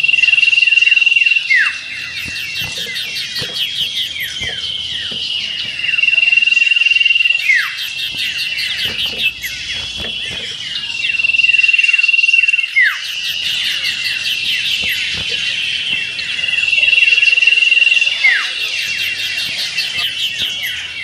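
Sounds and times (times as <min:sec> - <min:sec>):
many small birds chirping: 0:00.0 - 0:21.0.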